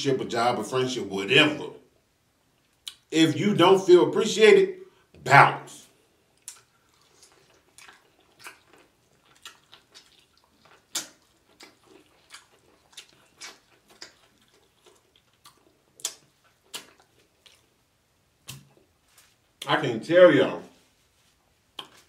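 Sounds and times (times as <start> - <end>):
wet mouth smacks: 6.4 - 17.6, 18.4 - 18.9, 21.8 - 22.0
biting and chewing clicks: 6.4 - 17.7.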